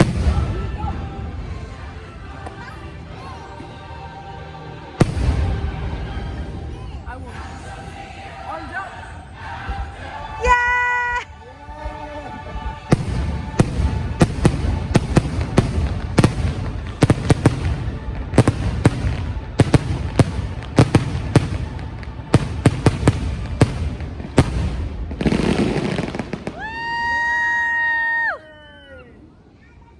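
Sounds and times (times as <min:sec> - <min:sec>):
firework bangs: 0:00.0 - 0:01.7, 0:05.0 - 0:06.6, 0:12.6 - 0:27.4
firework crackling burst: 0:12.8 - 0:27.8.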